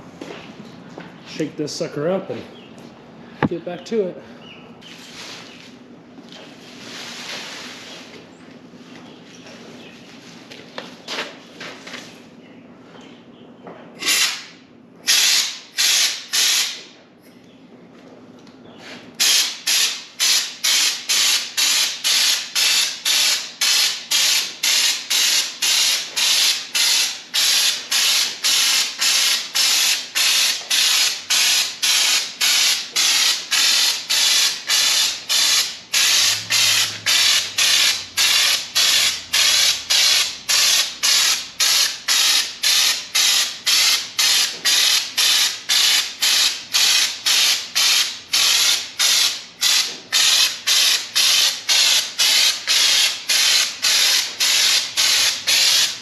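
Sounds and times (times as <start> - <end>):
spray gun hissing bursts: 19.2 - 56.0.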